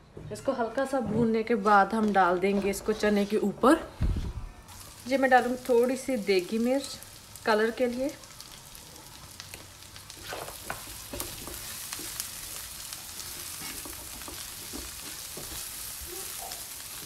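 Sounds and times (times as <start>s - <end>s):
potatoes sizzling in oil: 4.7s - 17.0s
spatula scraping and tapping pan: 9.5s - 16.0s.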